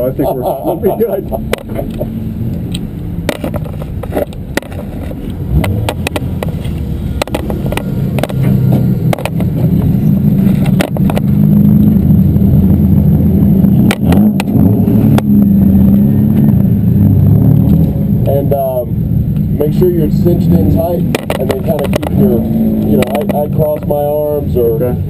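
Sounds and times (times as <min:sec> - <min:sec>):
race car engine running: 0:00.0 - 0:25.0
sharp clicks and rattles: 0:01.0 - 0:11.5, 0:13.8 - 0:15.3, 0:19.3 - 0:24.2.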